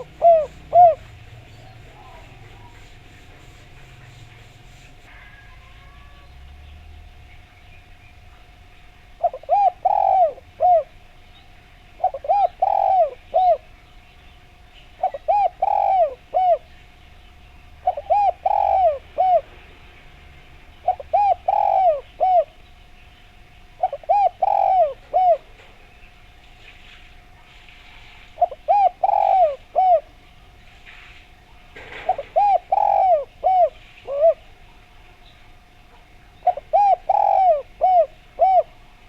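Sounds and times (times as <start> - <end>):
dove cooing: 0.0 - 6.3, 9.1 - 11.2, 11.9 - 13.8, 14.9 - 17.0, 17.7 - 19.7, 20.8 - 22.6, 23.6 - 25.9, 28.3 - 30.6, 31.8 - 34.7, 35.5 - 39.0.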